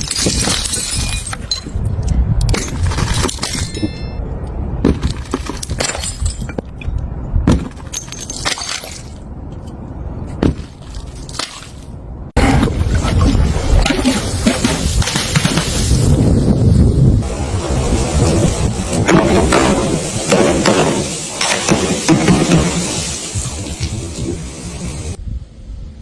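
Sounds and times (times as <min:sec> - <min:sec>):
glass bottles breaking: 0:00.0 - 0:01.8, 0:02.5 - 0:04.2, 0:05.0 - 0:06.6, 0:07.5 - 0:09.2.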